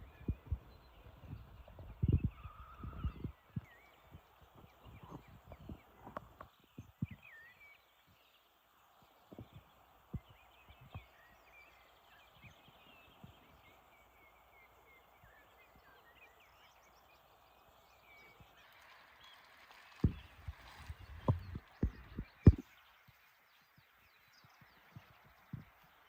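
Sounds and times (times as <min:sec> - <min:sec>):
small birds chirping: 0:00.0 - 0:26.0
soft low thumps: 0:20.0 - 0:22.7.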